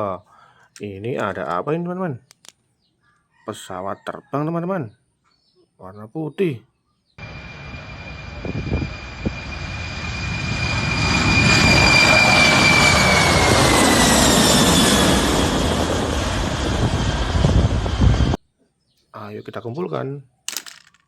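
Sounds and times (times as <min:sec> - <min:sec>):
jet airplane passing by: 0:07.2 - 0:18.4.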